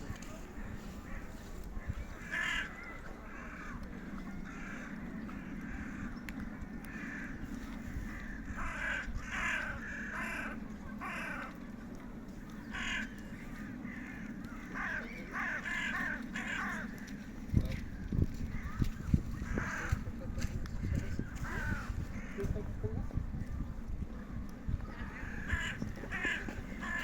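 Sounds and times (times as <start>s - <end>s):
steady low rumble: 0.0s - 27.0s
crows cawing: 2.2s - 3.8s, 4.4s - 6.2s, 6.9s - 7.4s, 8.0s - 11.6s, 12.6s - 17.2s, 19.4s - 20.0s, 21.4s - 22.5s, 25.2s - 27.0s.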